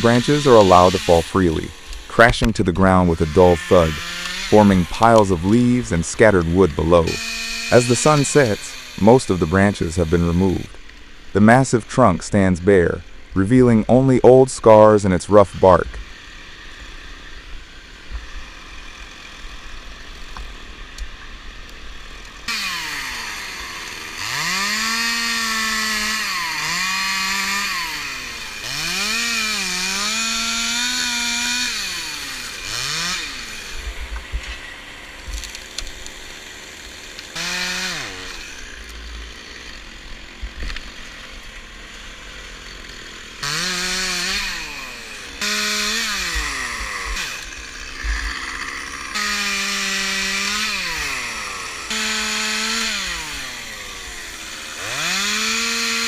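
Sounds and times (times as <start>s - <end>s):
chainsaw cutting wood: 0.0s - 56.0s
chainsaw idling: 0.0s - 56.0s
chainsaw revving: 0.0s - 56.0s.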